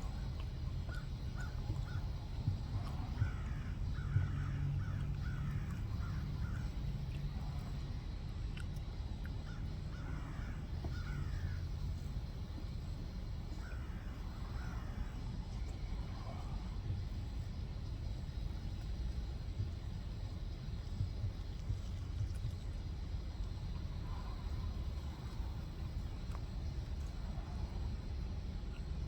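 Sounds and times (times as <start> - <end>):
birds calling: 0.0 - 7.8, 9.4 - 16.6
steady low rumble: 0.0 - 29.0.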